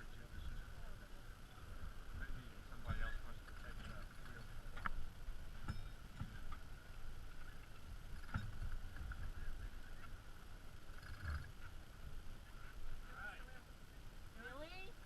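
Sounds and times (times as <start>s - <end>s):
water against boat hull: 2.8s - 13.0s.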